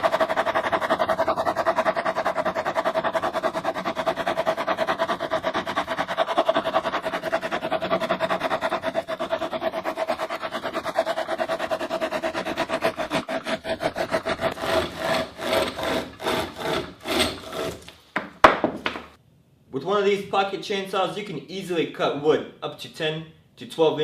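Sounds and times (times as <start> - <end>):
hand chain saw rasping wood: 0.0 - 18.0.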